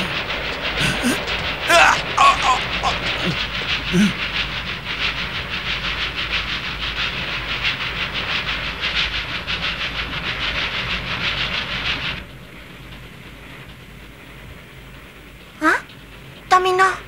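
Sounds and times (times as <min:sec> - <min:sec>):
cartoon train chugging: 0:00.0 - 0:12.2, 0:15.6 - 0:15.9, 0:16.5 - 0:17.0.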